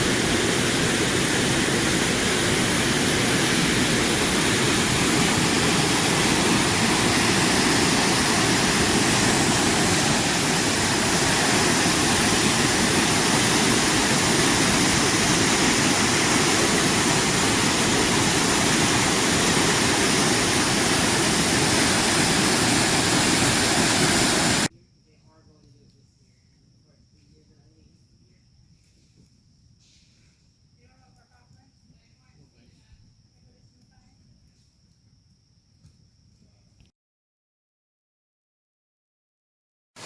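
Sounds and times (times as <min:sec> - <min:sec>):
waterfall rushing: 0:00.0 - 0:24.7.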